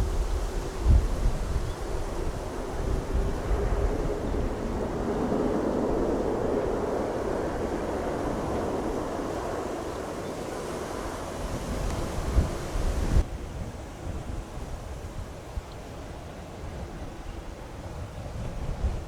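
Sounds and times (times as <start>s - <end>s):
jet airliner roar: 0.0s - 13.3s
wind buffeting microphone: 0.0s - 15.7s, 16.6s - 19.0s.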